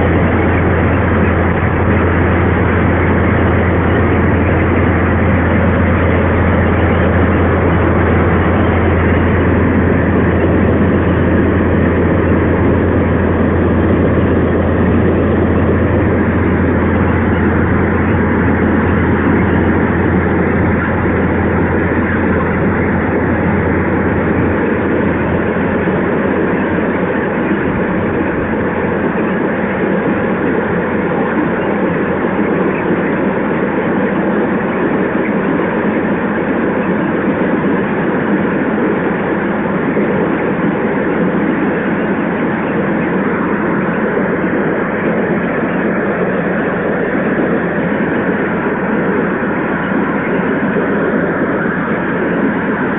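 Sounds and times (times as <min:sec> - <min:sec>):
low hum: 0:00.0 - 0:52.9
train rumbling past: 0:00.0 - 0:52.9.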